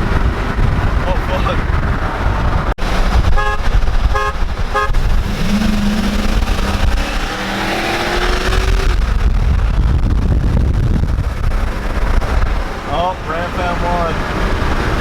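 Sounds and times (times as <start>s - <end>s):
road and wind noise: 0.0s - 15.0s
pickup truck engine accelerating: 1.6s - 15.0s
vehicle horn honking: 3.3s - 5.1s.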